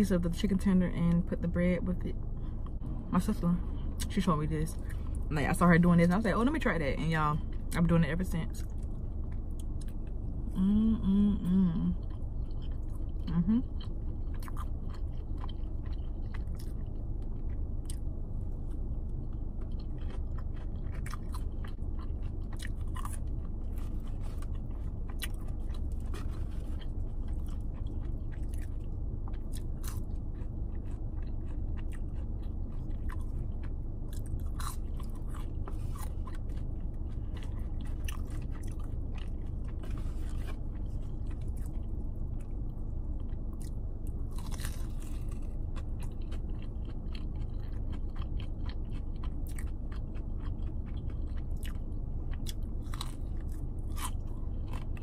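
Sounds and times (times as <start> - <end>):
constant low rumble: 0.0 - 55.0
wet chewing mouth sounds: 11.8 - 55.0.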